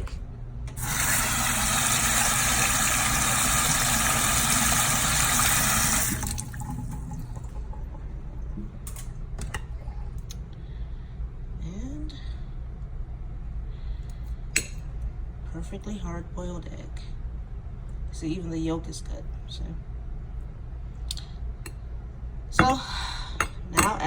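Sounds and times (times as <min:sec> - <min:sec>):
kitchen tap running into sink: 0:00.8 - 0:08.2.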